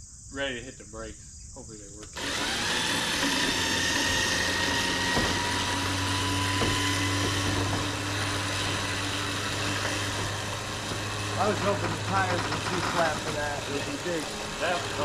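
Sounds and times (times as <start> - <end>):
electric winch motor whining: 2.2 - 15.0
light knocks: 6.4 - 8.0.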